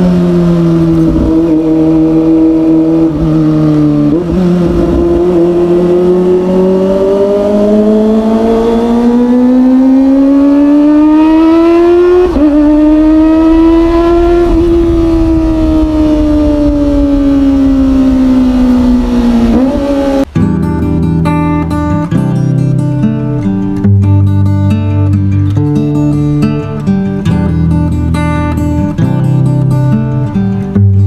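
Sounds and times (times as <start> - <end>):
wind rumbling on microphone: 0.0 - 9.2, 11.5 - 20.4
motorcycle engine accelerating: 0.0 - 21.9.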